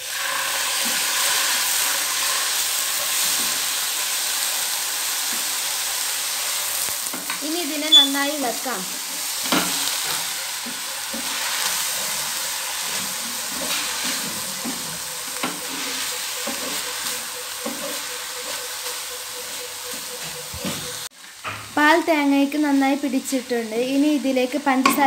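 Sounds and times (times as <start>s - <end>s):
spatula scraping a pan: 0.0s - 4.4s, 8.8s - 21.1s
coconut sizzling in a pan: 0.0s - 25.0s.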